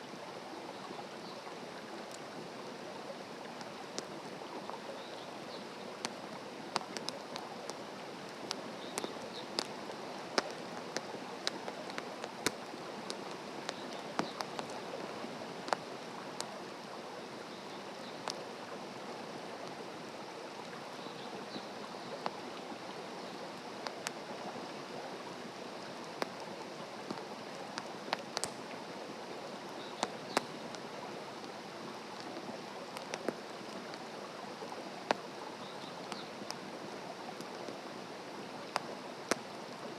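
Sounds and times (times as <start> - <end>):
campfire crackling and popping: 3.4 - 18.5, 23.5 - 24.3, 25.8 - 39.9.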